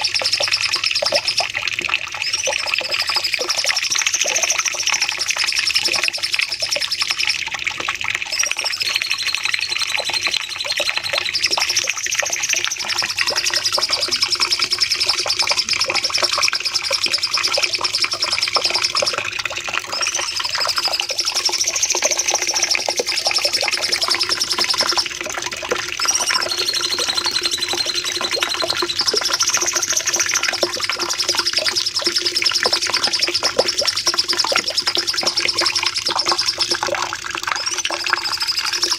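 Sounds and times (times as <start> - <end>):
bird singing rapid chirps: 0.0 - 1.6, 8.4 - 36.8.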